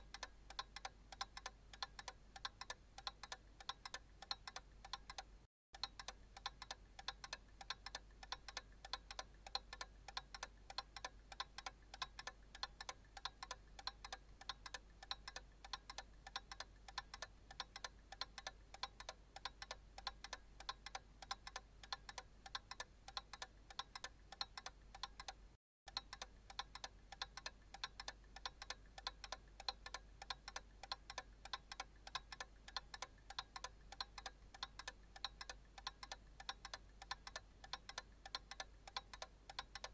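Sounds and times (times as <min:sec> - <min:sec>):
analog clock ticking: 0:00.0 - 0:39.9.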